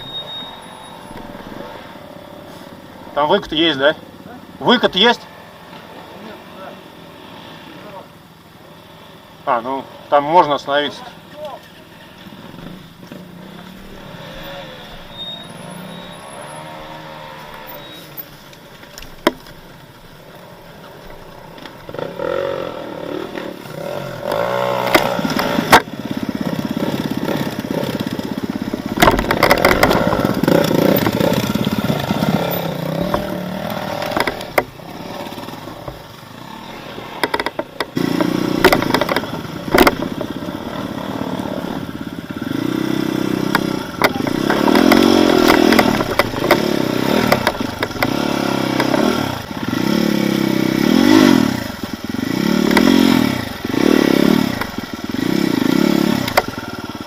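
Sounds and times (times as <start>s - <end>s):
motorcycle engine revving: 0.0s - 57.0s
bike knocking and clattering: 18.2s - 20.0s, 24.3s - 36.4s, 37.2s - 40.9s, 42.1s - 57.0s.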